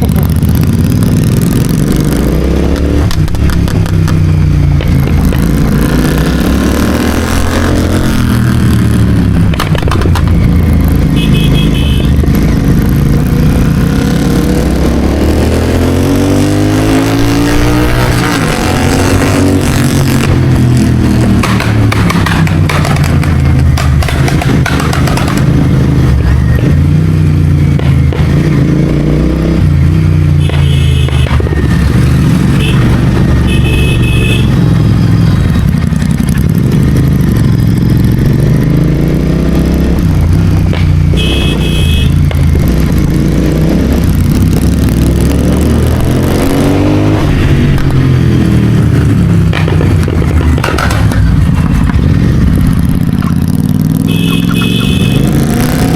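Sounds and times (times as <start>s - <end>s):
motorcycle engine revving: 0.0s - 55.9s
vehicle horn honking: 11.1s - 12.2s, 30.4s - 31.4s, 32.5s - 34.6s, 41.1s - 42.2s, 54.0s - 55.4s.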